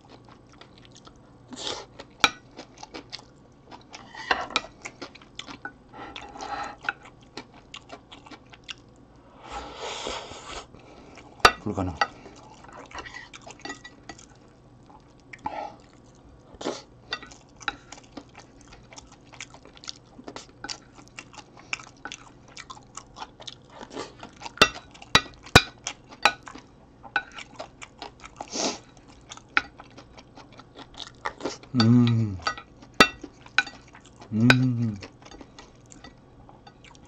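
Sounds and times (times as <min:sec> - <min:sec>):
chewing and biting food: 0:00.0 - 0:09.0, 0:17.2 - 0:31.8.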